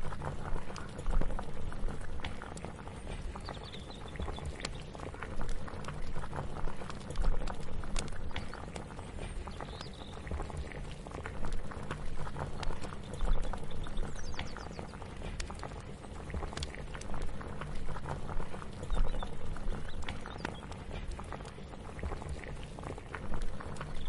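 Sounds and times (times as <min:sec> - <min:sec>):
pot bubbling: 0:00.0 - 0:24.0.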